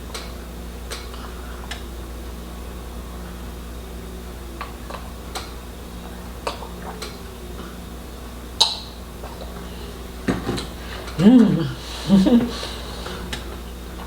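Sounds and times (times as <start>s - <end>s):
steady low hum: 0.0s - 14.0s
eating clicks and smacks: 0.1s - 1.9s, 4.6s - 7.7s, 8.6s - 14.0s.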